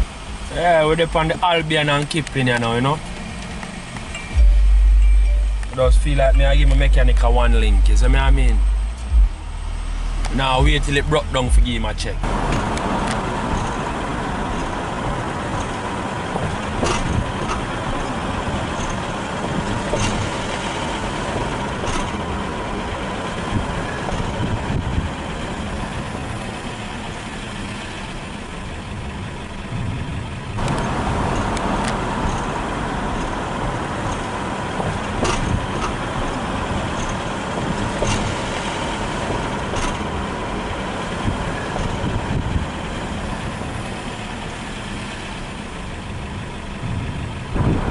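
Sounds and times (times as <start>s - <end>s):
car engine and road noise: 0.0s - 47.9s
light clicks and rattles: 12.5s - 20.7s, 34.0s - 38.5s.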